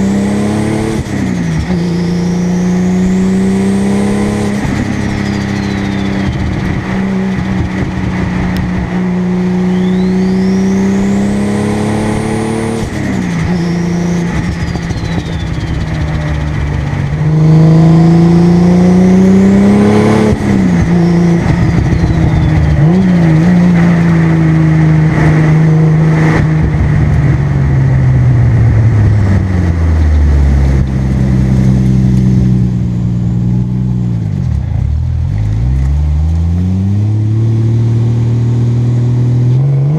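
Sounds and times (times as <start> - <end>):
car engine revving through gears: 0.0 - 27.4, 28.4 - 39.9
turbo whistle: 5.2 - 6.6, 9.6 - 11.2, 13.4 - 16.4, 20.9 - 22.8.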